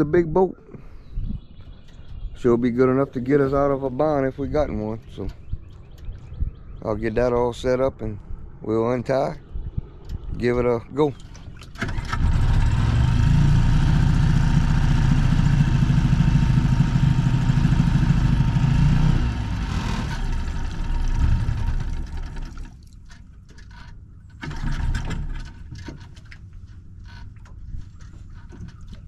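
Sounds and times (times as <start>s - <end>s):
boat motor running: 11.2s - 22.8s.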